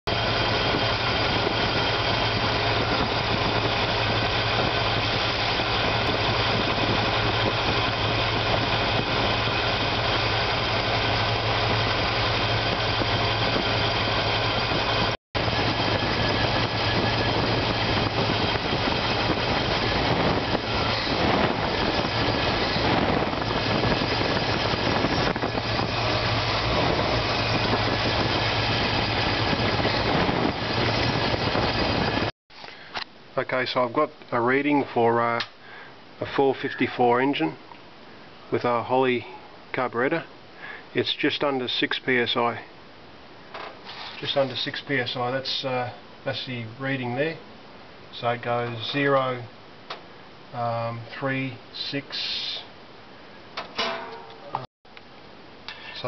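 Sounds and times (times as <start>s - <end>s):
car engine idling: 0.1s - 32.0s.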